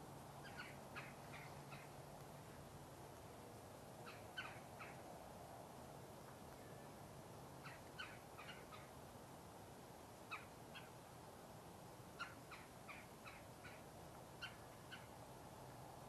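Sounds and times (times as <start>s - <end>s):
bird calling harsh repeated notes: 0.4s - 1.9s.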